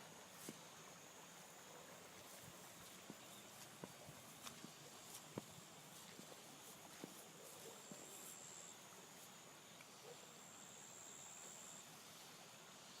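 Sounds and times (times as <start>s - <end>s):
high steady insect trill: 4.2s - 13.0s.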